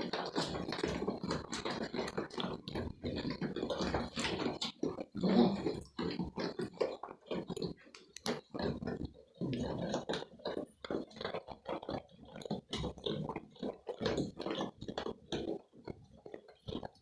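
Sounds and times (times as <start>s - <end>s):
goats crunching and chewing: 0.0s - 17.0s.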